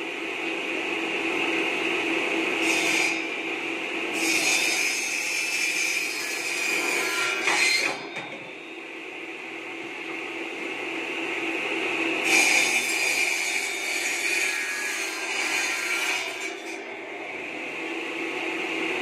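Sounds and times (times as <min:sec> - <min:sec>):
saw blade cutting bamboo: 0:04.1 - 0:08.1, 0:12.2 - 0:16.8.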